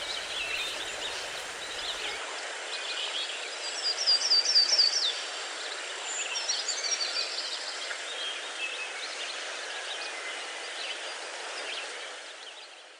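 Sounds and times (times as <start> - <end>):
birds chirping: 0.0 - 2.2
steady background hiss: 0.0 - 2.2.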